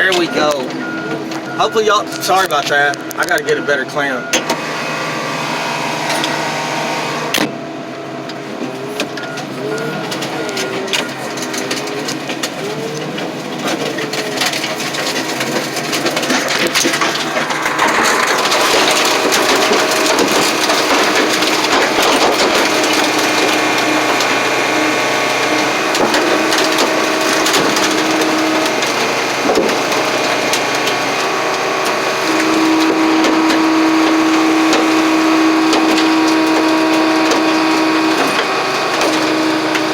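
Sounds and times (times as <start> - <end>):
hydraulic hum: 0.0 - 39.9
steel frames cracking and creaking: 9.0 - 39.9.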